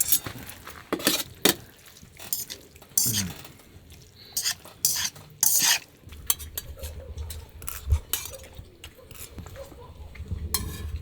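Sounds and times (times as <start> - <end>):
cutlery clinking: 0.0 - 0.4, 2.2 - 3.6, 4.4 - 9.6, 10.6 - 11.0
cutlery scraping plates: 0.0 - 1.6, 2.2 - 3.6, 4.3 - 9.8, 10.5 - 11.0.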